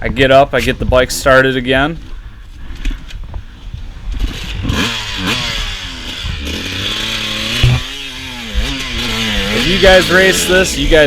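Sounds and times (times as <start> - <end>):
dirt bike engine revving: 3.9 - 11.0.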